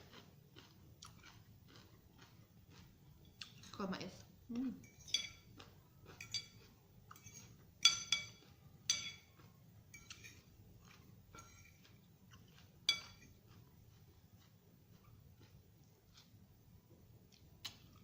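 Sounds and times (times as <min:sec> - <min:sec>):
cutlery clinking against a dish: 0:04.8 - 0:05.5, 0:06.2 - 0:13.4.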